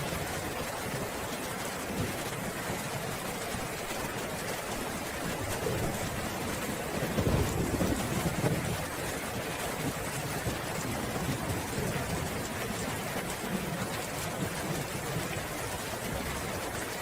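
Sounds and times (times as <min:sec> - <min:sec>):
heavy rain: 0:00.0 - 0:17.0
thunder rumbling: 0:04.4 - 0:16.6.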